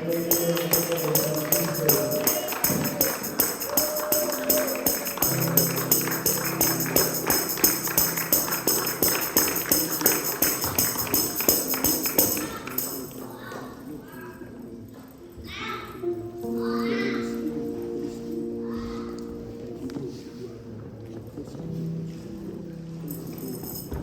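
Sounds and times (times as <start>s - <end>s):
tambourine fast beat: 0.0s - 13.1s.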